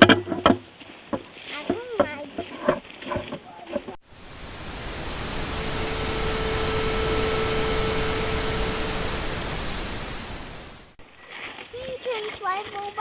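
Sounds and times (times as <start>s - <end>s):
loud even hiss: 4.0s - 11.0s
steady low hum: 4.0s - 11.0s.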